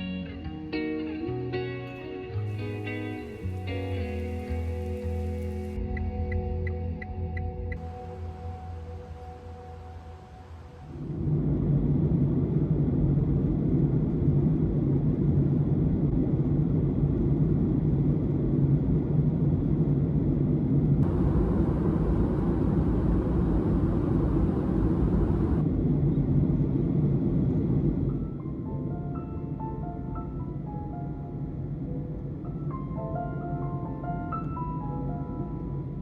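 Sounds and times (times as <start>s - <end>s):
bright hiss: 2.5s - 5.8s
vehicle interior rumble: 21.0s - 25.7s.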